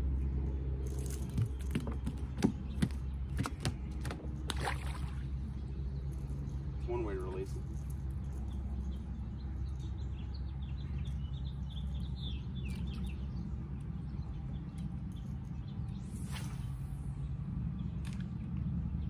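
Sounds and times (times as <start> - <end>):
bird chirping: 5.3 - 16.2.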